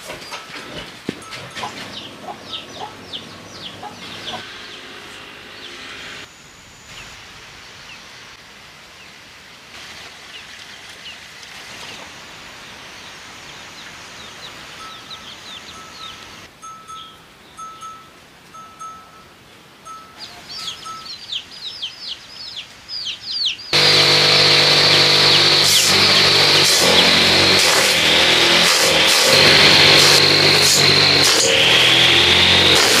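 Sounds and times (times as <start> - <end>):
birds chirping: 0.0 - 8.2, 11.8 - 18.1, 19.8 - 32.8
outdoor background hiss: 4.4 - 23.8.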